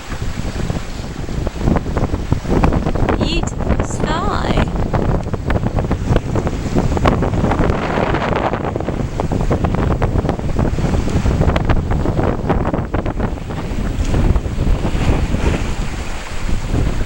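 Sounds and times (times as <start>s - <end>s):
wind buffeting microphone: 0.0s - 17.0s
water splashing past hull: 4.7s - 17.0s.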